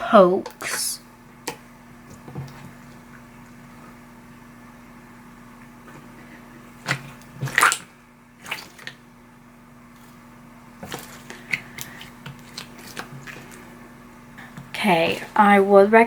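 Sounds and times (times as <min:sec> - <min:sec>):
slime squelching and popping: 0:06.8 - 0:09.0.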